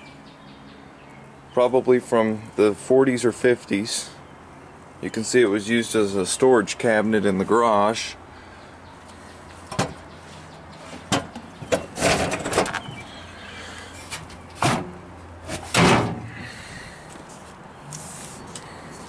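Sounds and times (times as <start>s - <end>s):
refrigerator door clunks and scrapes: 11.0s - 13.0s, 14.1s - 16.3s.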